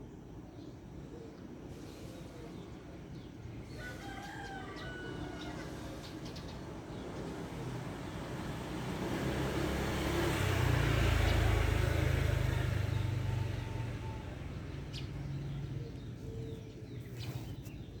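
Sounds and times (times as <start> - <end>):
vehicle engine driving past: 7.9 - 16.6.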